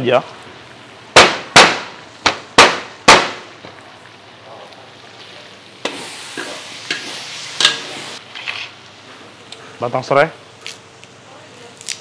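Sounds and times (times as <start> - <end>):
paste sizzling in a wok: 3.4 - 9.0.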